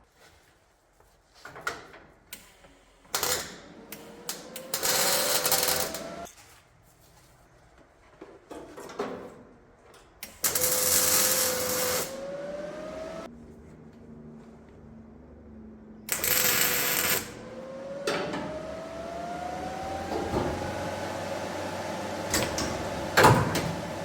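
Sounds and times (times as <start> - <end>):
power tool cutting sheet metal: 3.3 - 6.3, 10.5 - 13.3, 16.1 - 24.0.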